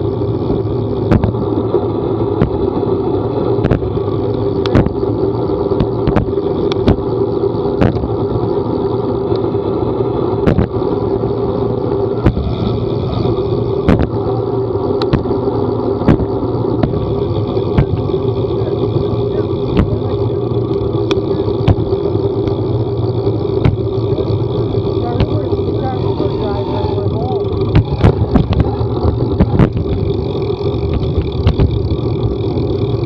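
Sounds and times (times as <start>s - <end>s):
vehicle running: 0.0s - 33.0s.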